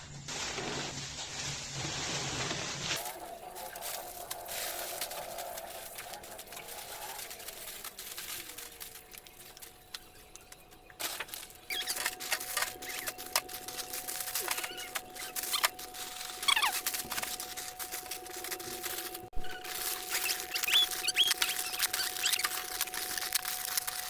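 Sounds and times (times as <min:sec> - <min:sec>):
packaging being handled: 0:02.6 - 0:24.0
short squeaks: 0:11.7 - 0:13.2, 0:20.0 - 0:22.9.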